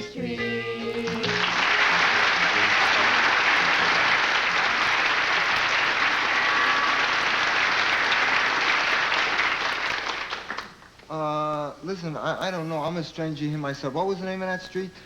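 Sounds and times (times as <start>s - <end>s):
audience applauding: 1.0s - 10.9s.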